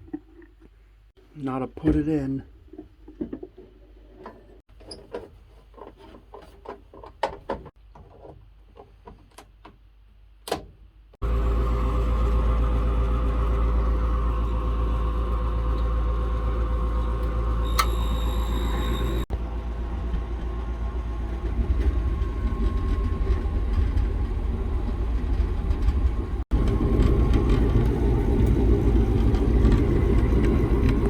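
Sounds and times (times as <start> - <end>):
blower motor humming with whine: 11.2 - 31.0.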